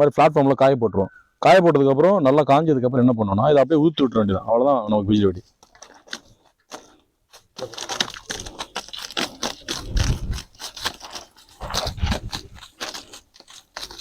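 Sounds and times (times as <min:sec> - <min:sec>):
paper crackers crunching and rattling: 0:05.4 - 0:14.0.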